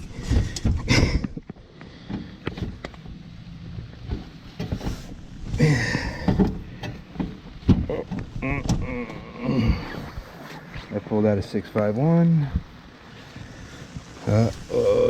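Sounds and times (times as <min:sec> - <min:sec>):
person muttering: 0:05.6 - 0:06.3, 0:07.8 - 0:10.3, 0:14.2 - 0:15.0.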